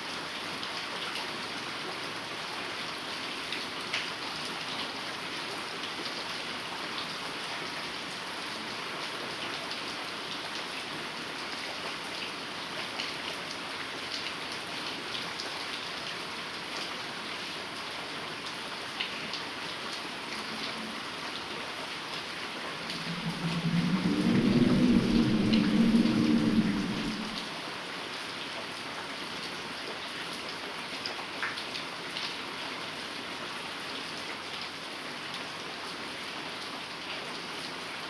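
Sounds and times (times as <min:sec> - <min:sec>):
heavy rain falling: 0:18.4 - 0:27.7
raindrops striking close by: 0:22.7 - 0:27.6.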